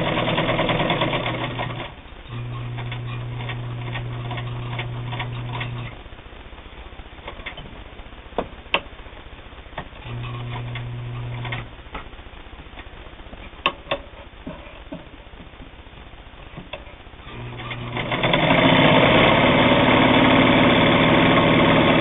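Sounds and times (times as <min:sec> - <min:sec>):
sewing machine motor humming: 0:00.0 - 0:06.0, 0:10.0 - 0:11.7, 0:17.3 - 0:22.0
clicks and taps: 0:13.6 - 0:15.7.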